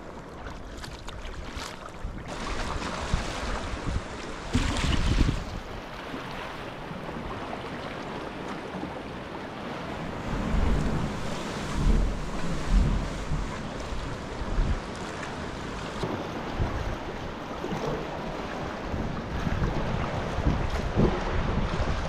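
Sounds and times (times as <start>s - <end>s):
sea water rushing: 0.0s - 22.0s
wind buffeting microphone: 1.3s - 6.0s, 9.6s - 22.0s.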